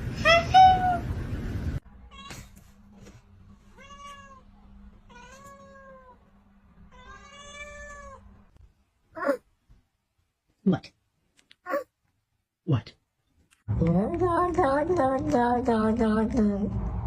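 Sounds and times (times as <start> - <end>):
cat meowing: 3.7 - 4.5, 5.1 - 6.2, 6.9 - 8.2.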